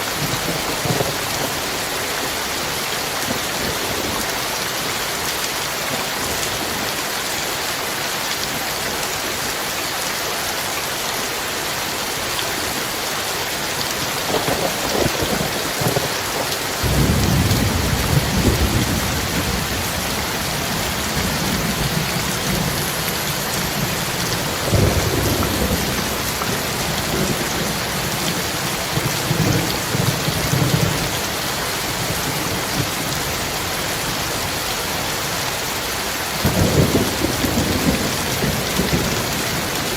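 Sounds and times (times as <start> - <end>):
heavy rain hissing: 0.0 - 39.9
thunder rumbling: 14.2 - 31.3.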